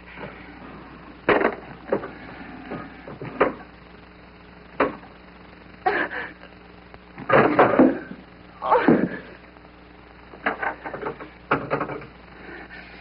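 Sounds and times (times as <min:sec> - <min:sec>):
steady low hum: 0:00.0 - 0:13.0
sharp knocks and clicks: 0:10.4 - 0:12.1.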